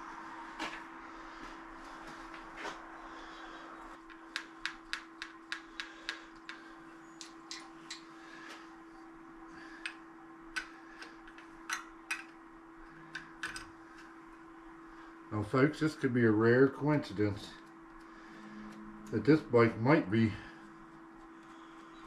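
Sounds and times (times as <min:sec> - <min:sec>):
steady low hum: 0:00.0 - 0:22.0
sharp metallic clicks and taps: 0:04.0 - 0:06.6.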